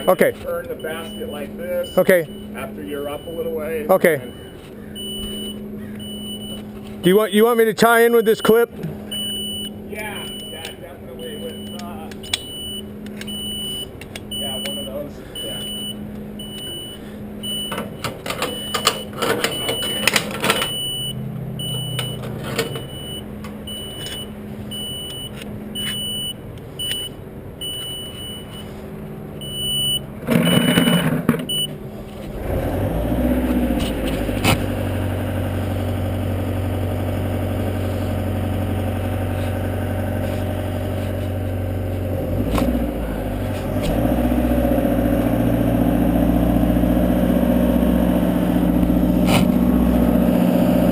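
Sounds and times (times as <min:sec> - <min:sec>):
warning beeper short beeps: 0:00.0 - 0:06.6, 0:08.0 - 0:17.8, 0:18.5 - 0:28.7, 0:29.4 - 0:31.8
lift engine running: 0:00.0 - 0:50.9.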